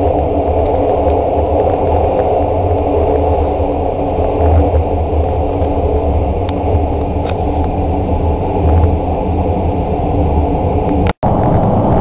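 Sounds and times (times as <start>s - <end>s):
train rumbling in tunnel: 0.0s - 12.0s.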